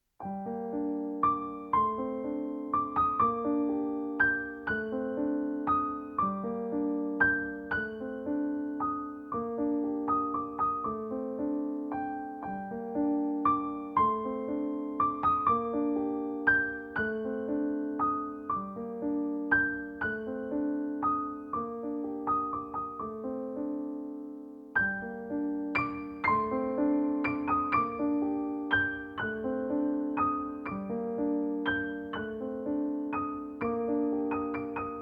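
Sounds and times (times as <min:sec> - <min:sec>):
gentle piano music: 0:00.0 - 0:35.0.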